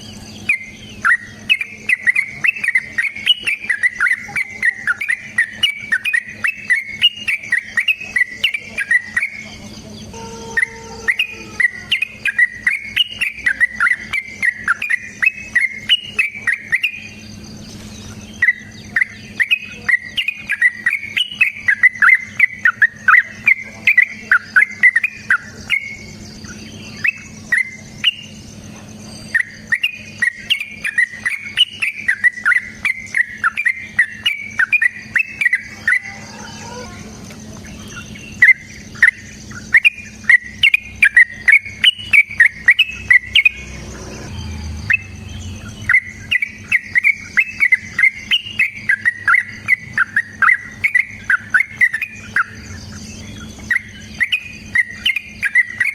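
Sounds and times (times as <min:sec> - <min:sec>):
bird chattering song: 0:00.0 - 0:55.9
faint insect drone: 0:00.0 - 0:55.9.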